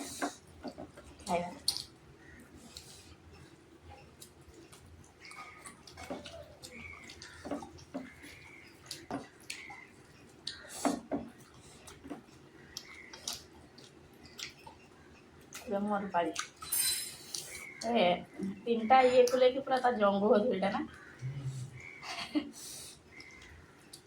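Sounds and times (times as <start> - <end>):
chewing and lip-smacking: 0.4 - 17.9, 23.0 - 24.0.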